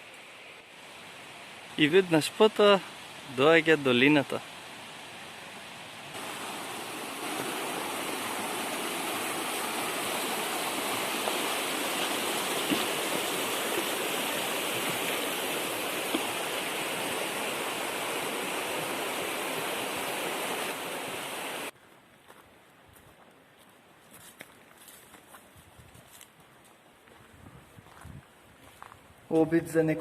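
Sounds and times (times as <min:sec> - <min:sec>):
stream rushing: 0:00.0 - 0:21.7.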